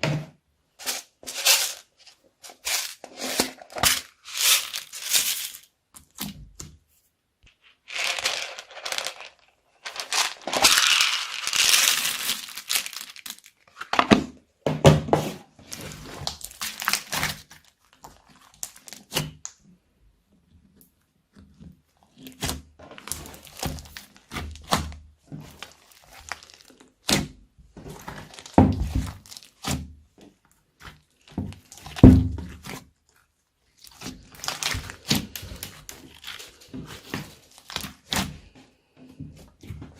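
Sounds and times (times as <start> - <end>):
slime crackling and squishing: 7.8 - 13.9, 15.6 - 19.4, 22.1 - 29.8, 30.7 - 38.6.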